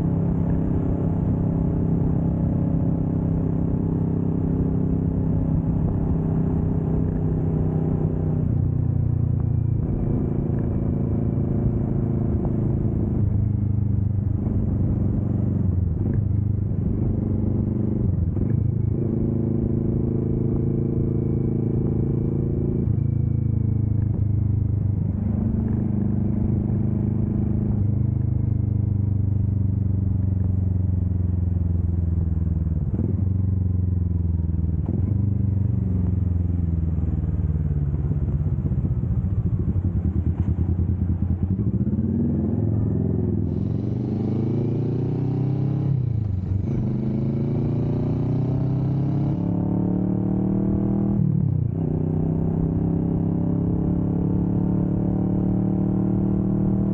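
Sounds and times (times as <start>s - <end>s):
motorcycle engine running: 3.4s - 56.9s.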